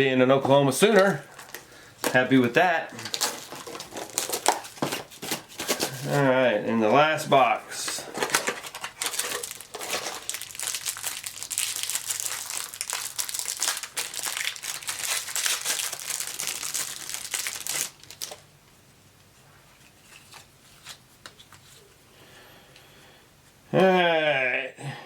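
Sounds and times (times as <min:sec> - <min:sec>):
plastic wrapping crinkling: 0:00.4 - 0:06.4, 0:07.9 - 0:18.4.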